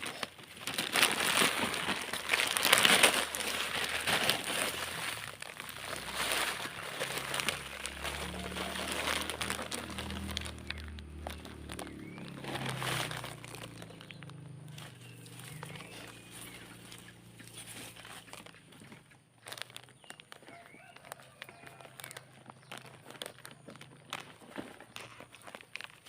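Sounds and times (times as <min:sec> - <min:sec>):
plastic bag crinkling: 0:00.0 - 0:26.0
soil crumbling: 0:00.0 - 0:26.0.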